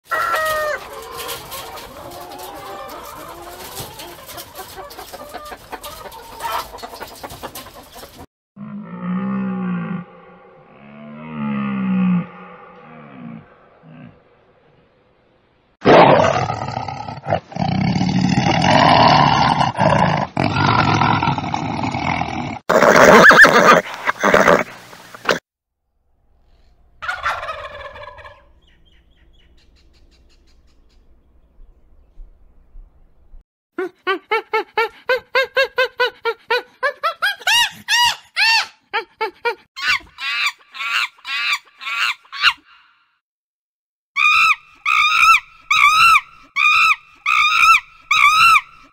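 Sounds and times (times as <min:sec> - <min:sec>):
tiger roaring growls: 0:08.6 - 0:14.8, 0:15.8 - 0:22.6
pitched animal calls: 0:26.5 - 0:31.1, 0:44.2 - 0:48.9
gobbling bird call: 0:27.0 - 0:31.1.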